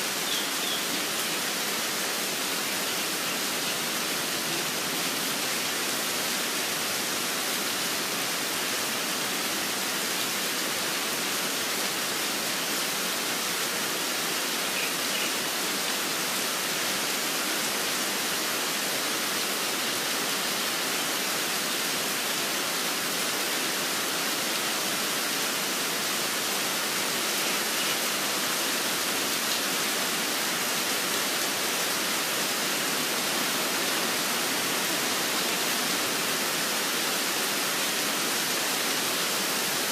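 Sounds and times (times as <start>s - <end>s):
steady rain: 0.0s - 39.9s
bird chirps: 0.2s - 1.3s.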